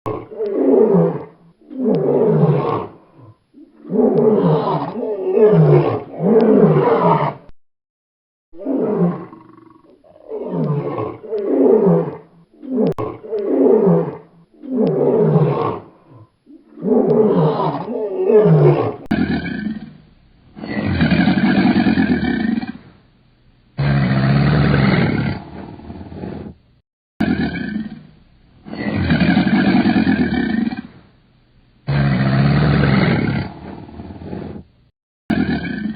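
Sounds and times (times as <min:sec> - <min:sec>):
lion roaring: 0:00.1 - 0:07.5, 0:08.6 - 0:19.9, 0:23.8 - 0:26.6, 0:27.2 - 0:28.0, 0:28.7 - 0:30.9, 0:31.9 - 0:34.6, 0:35.3 - 0:35.9.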